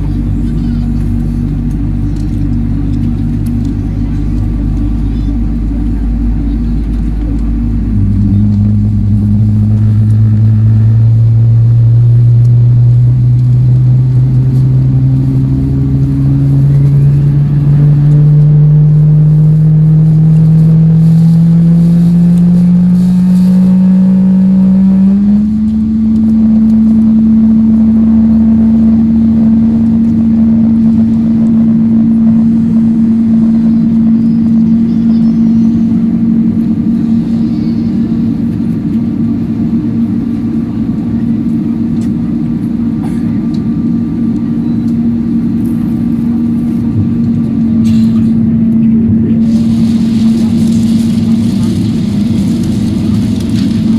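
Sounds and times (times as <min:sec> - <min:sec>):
electric train motors whining: 0:00.0 - 0:42.8, 0:48.6 - 0:53.9.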